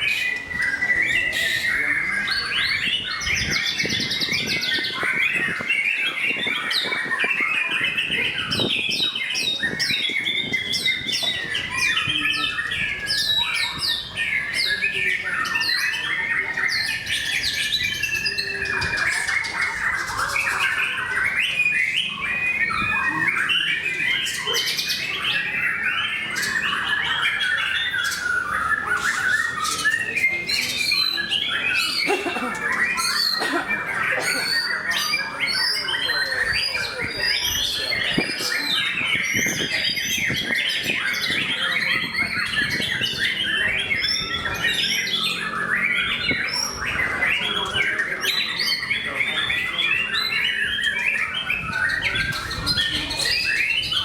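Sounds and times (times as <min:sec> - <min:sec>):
bird song with whistles and trills: 0:00.0 - 0:54.0.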